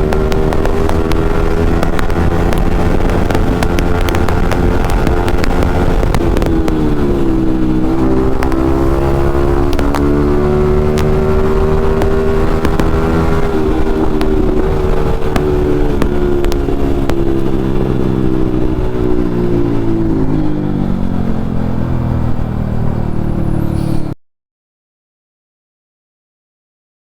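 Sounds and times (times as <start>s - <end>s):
motorcycle engine running: 0.0s - 24.2s.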